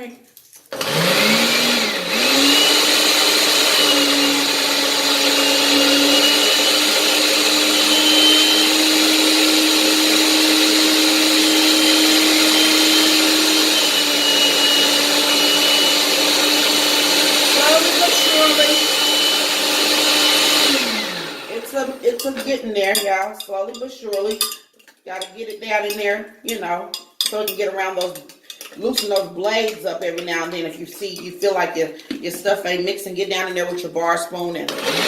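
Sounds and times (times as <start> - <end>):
blender motor running: 0.7 - 22.2, 34.7 - 35.0.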